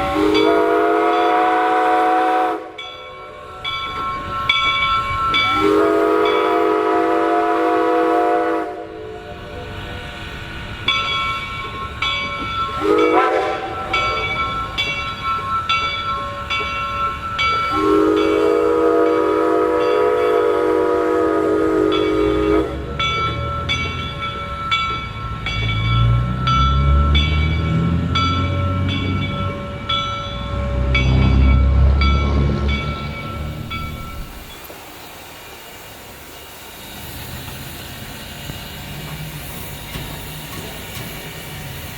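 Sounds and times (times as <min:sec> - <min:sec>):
steam locomotive chime whistle: 0:00.0 - 0:10.1, 0:10.8 - 0:41.9
locomotive working rumble: 0:00.0 - 0:41.9
bell ringing: 0:02.8 - 0:05.6, 0:10.9 - 0:18.5, 0:22.9 - 0:34.8.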